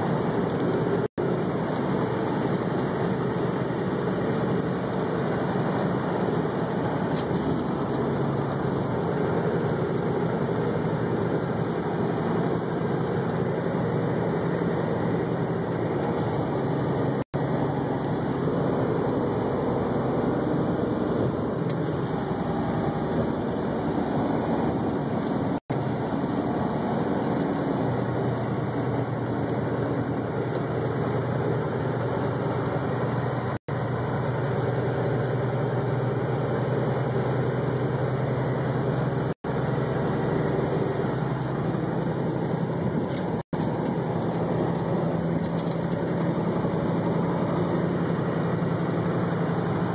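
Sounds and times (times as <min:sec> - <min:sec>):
vehicle and road noise: 0:00.0 - 0:49.9.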